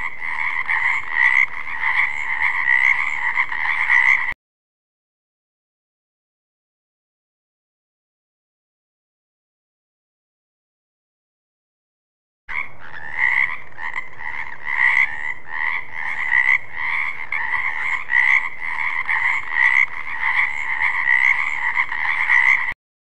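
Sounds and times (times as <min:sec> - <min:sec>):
frogs calling in chorus: 0:00.0 - 0:04.4, 0:12.5 - 0:22.8.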